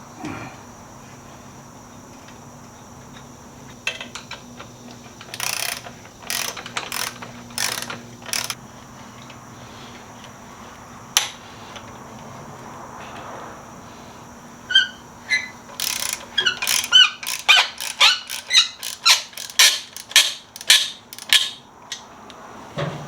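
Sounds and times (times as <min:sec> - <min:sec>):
hand ratchet clicking: 0:03.8 - 0:08.6, 0:14.7 - 0:22.0.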